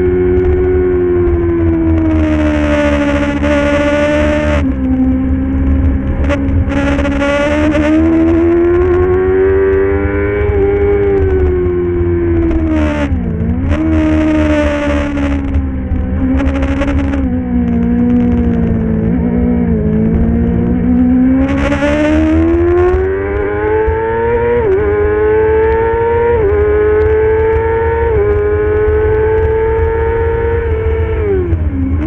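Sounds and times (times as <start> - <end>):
motorcycle engine racing: 0.0 - 32.0.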